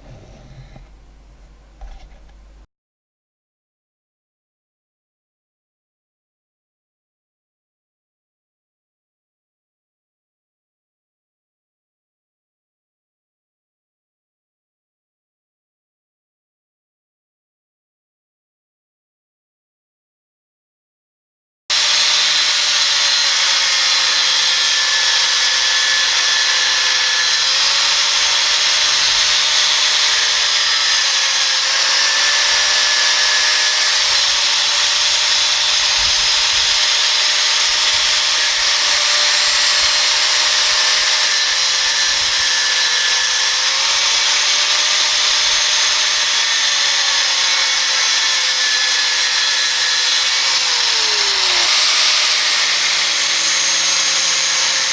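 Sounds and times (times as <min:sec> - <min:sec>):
angle grinder cutting metal: 0:21.7 - 0:54.9.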